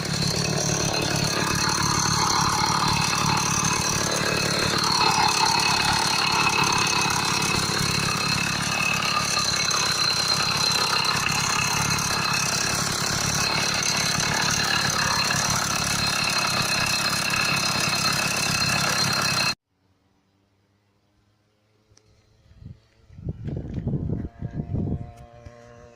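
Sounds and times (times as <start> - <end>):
two-stroke engine idling: 0.0 - 19.6.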